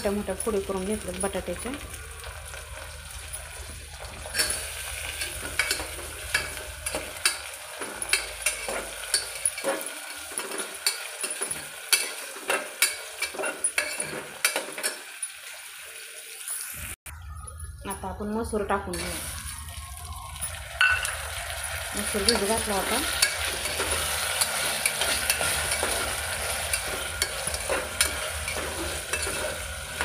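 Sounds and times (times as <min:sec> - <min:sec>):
potatoes frying in hot oil: 0:00.0 - 0:16.9, 0:19.0 - 0:30.0
spoon scraping and clicking: 0:08.1 - 0:15.0, 0:23.1 - 0:30.0.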